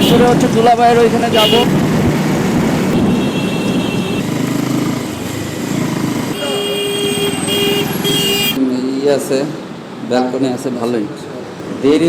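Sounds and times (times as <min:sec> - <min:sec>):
vehicle horns honking: 0:00.0 - 0:01.8, 0:02.8 - 0:04.4, 0:06.3 - 0:08.6
motorcycle engine: 0:00.0 - 0:08.6.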